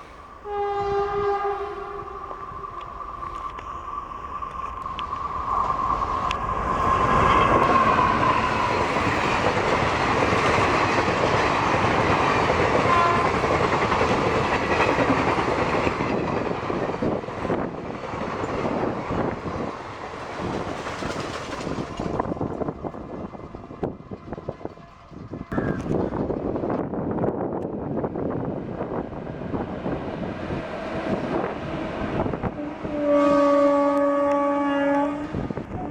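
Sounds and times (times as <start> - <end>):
train coaches rushing past: 0.0 - 27.1
train horn: 0.4 - 2.9, 12.7 - 13.6, 32.4 - 35.9.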